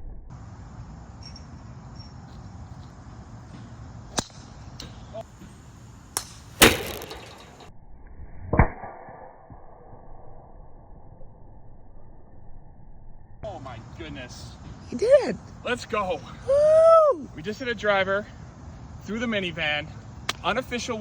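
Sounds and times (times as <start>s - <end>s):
steady outdoor hiss: 0.4s - 7.7s, 13.4s - 21.0s
golf driver striking ball: 6.2s - 7.7s.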